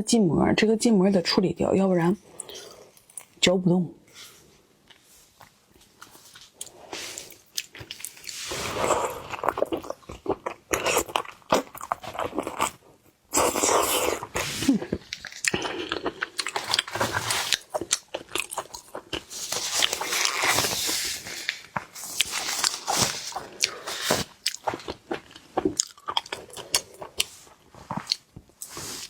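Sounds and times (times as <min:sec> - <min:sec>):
crunchy chewing: 0:06.0 - 0:29.0.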